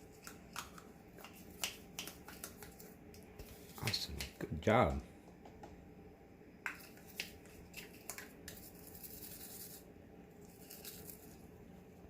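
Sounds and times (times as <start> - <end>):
soft scrubbing hiss: 0.0 - 5.4.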